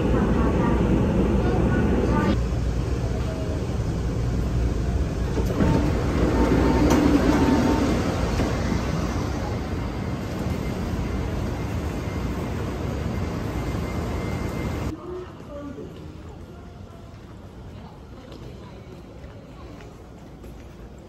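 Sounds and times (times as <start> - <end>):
train rumbling on rails: 0.0 - 21.0
faint whine: 6.4 - 14.9.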